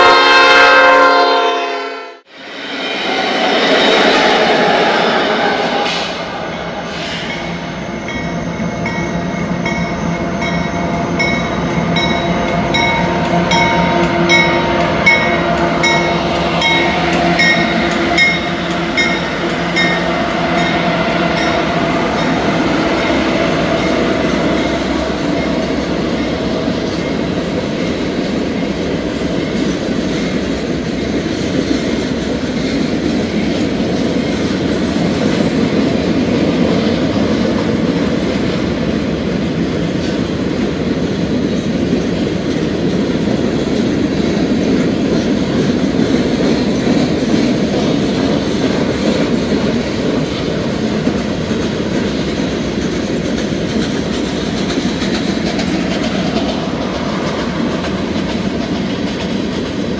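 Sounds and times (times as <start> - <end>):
diesel locomotive engines droning: 0.0 - 59.9
freight cars rolling on rails: 2.4 - 59.9
locomotive bell ringing: 6.2 - 28.1.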